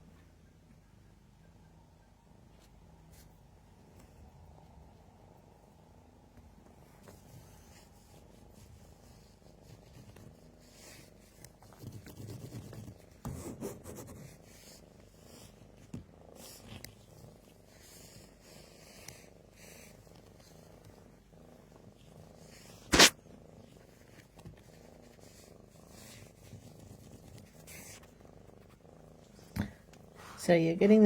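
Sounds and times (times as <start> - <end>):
cat purring: 1.4 - 31.0.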